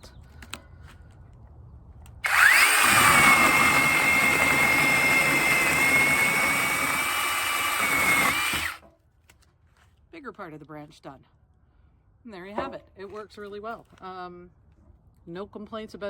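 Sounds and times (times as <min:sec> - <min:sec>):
mini chainsaw high whine: 0:02.2 - 0:08.8.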